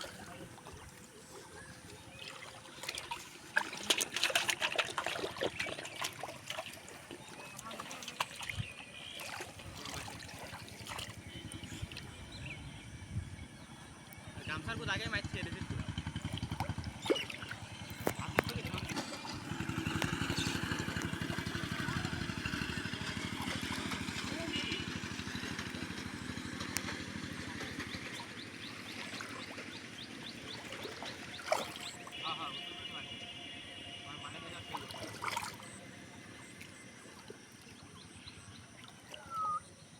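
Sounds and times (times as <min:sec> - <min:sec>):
river water sloshing and trickling: 0:00.0 - 0:39.9
low uneven rumble: 0:06.8 - 0:38.7
small engine running: 0:13.9 - 0:34.2.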